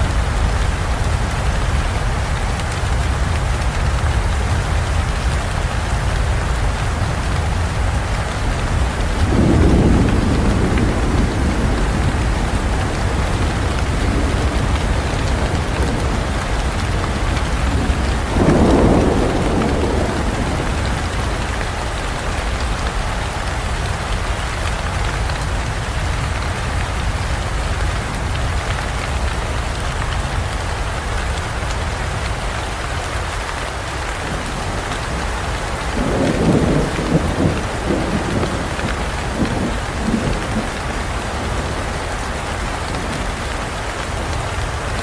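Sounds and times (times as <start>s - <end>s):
thunder rumbling: 0.0s - 28.6s, 34.1s - 45.0s
heavy rain falling: 0.0s - 45.0s.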